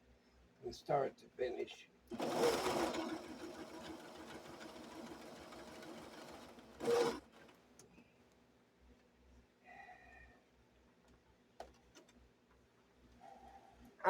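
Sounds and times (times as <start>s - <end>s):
sewing machine whirring: 2.1s - 7.8s.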